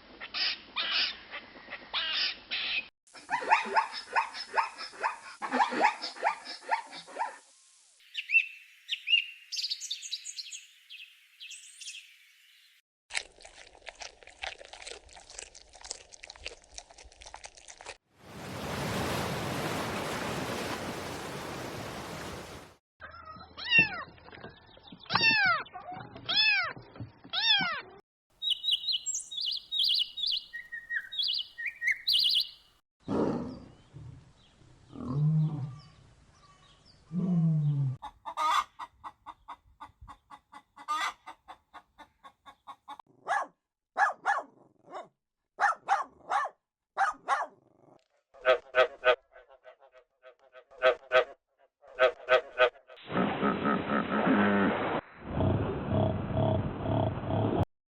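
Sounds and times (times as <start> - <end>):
high chirps: 28.4 - 32.6
rapid short repeated calls: 28.4 - 32.6.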